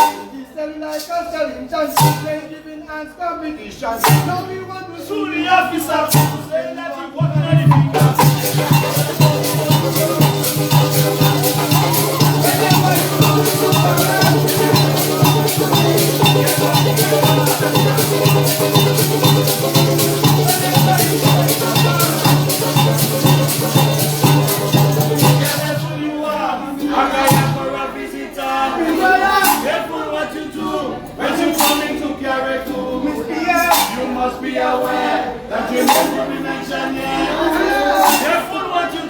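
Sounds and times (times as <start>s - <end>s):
percussion rhythm: 0.0s - 2.6s, 4.0s - 4.9s, 5.6s - 39.0s
plucked strings: 7.9s - 26.0s
steady bass: 7.9s - 26.0s.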